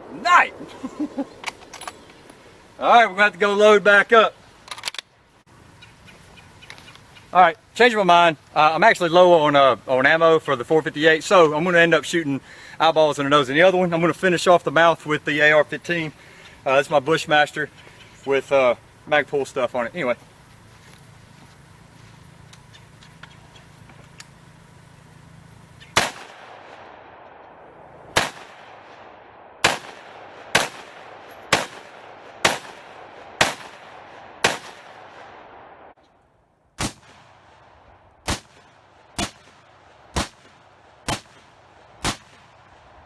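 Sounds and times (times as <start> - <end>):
rifle shots: 25.9 - 35.9, 36.8 - 42.9.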